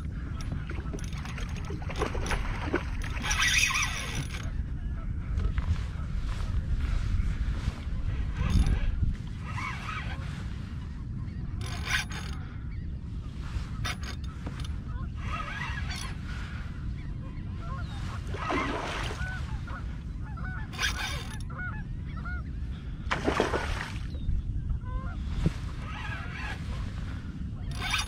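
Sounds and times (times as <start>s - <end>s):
water splashing: 18.3s - 19.4s, 23.1s - 24.1s.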